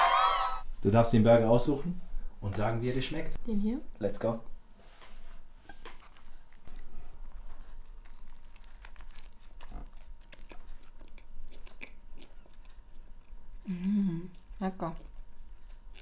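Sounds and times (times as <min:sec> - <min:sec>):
person chewing a burger: 0:05.6 - 0:13.7, 0:14.3 - 0:16.0.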